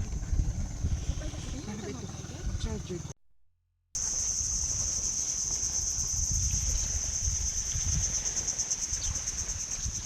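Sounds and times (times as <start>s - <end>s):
low rumble: 0.0s - 3.2s
insects chirring: 4.0s - 10.0s.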